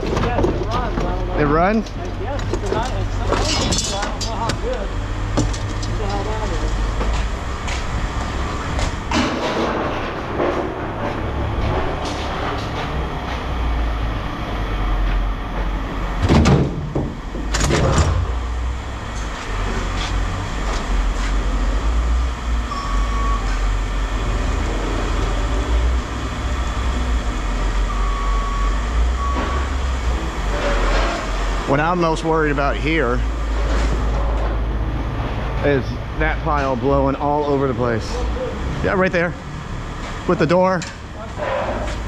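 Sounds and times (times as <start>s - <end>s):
steady low rumble: 0.0s - 29.3s
loud knocks: 16.2s - 18.3s.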